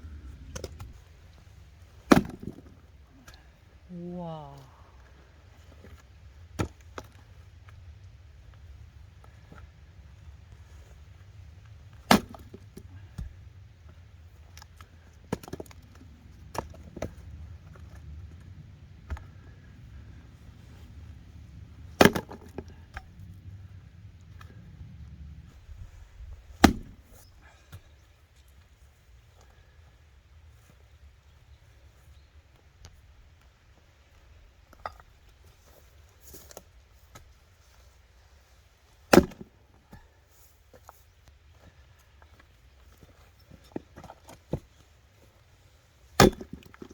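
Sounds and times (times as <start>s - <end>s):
axe chopping log: 2.0s - 2.8s, 12.1s - 12.6s, 22.0s - 23.0s, 26.6s - 27.0s, 39.1s - 40.0s, 46.2s - 46.9s.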